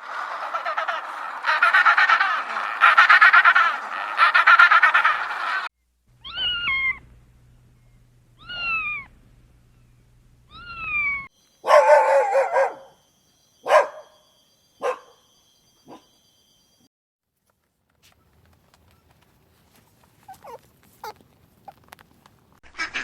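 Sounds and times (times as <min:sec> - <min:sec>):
cat meowing: 0:06.2 - 0:07.0, 0:08.4 - 0:09.1, 0:10.5 - 0:11.3
dog barking: 0:11.6 - 0:13.0, 0:13.6 - 0:14.2, 0:14.8 - 0:15.2, 0:15.9 - 0:16.2.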